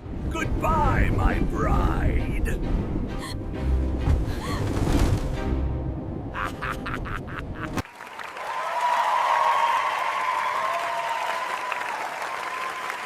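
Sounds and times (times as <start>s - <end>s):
music: 0.0s - 7.0s
crowd clapping: 7.8s - 13.0s.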